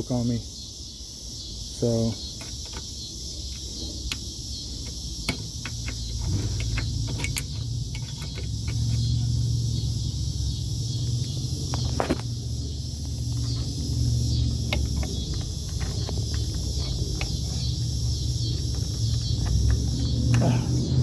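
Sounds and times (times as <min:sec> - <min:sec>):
crickets chirring: 0:00.0 - 0:21.0
low steady rumble: 0:05.0 - 0:21.0.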